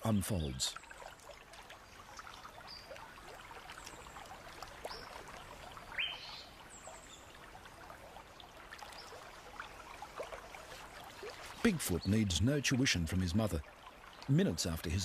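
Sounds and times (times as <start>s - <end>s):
creek water trickling: 0.0s - 15.0s
high bird calls: 5.8s - 7.2s.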